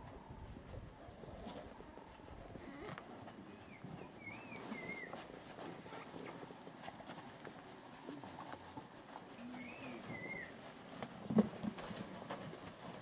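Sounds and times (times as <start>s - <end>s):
bird whistling call: 3.6s - 5.2s, 9.6s - 10.5s.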